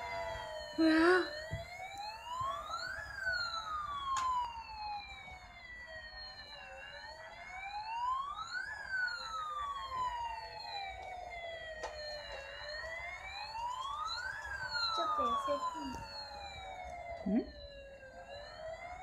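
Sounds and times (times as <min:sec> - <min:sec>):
toy fire truck siren wailing: 0:00.0 - 0:19.0.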